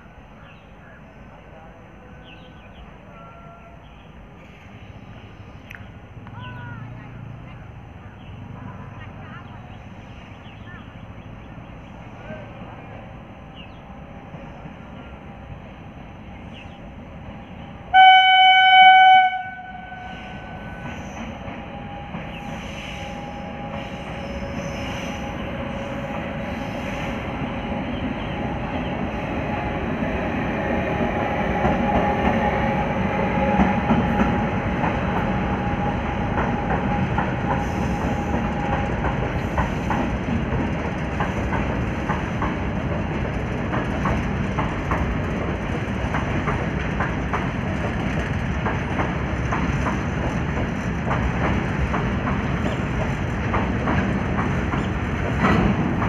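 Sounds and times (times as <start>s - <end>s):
train wheels rumbling: 0.0s - 56.0s
train horn blast: 17.9s - 21.4s
wagons clacking over rail joints: 33.5s - 56.0s.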